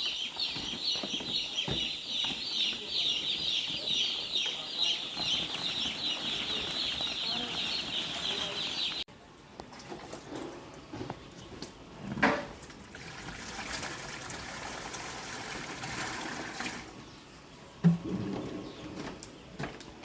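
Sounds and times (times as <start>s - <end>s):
chicks peeping: 0.0s - 9.1s.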